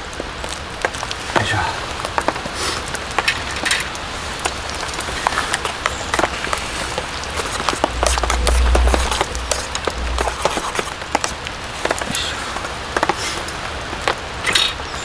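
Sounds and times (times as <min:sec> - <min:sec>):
rain drops tapping on tent canvas: 0:00.0 - 0:15.0
steady rain patter: 0:00.0 - 0:15.0
low rumble: 0:06.6 - 0:11.3.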